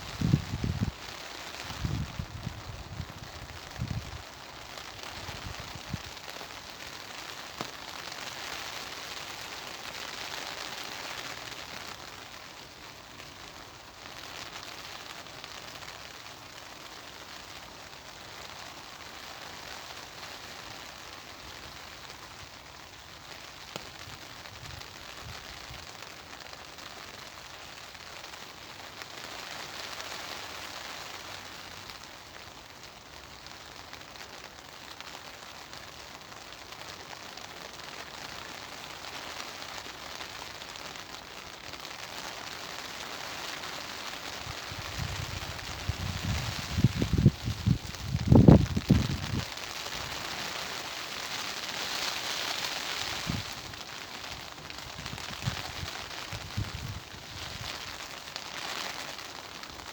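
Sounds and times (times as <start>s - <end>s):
wind gusts: 0.0s - 1.0s, 44.4s - 50.6s, 53.0s - 53.8s, 54.5s - 57.8s
steady rain falling: 0.0s - 59.9s.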